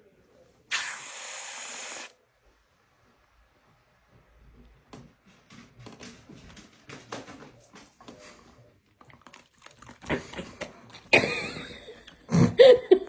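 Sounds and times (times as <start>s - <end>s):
dog clicking and tapping: 5.0s - 8.4s.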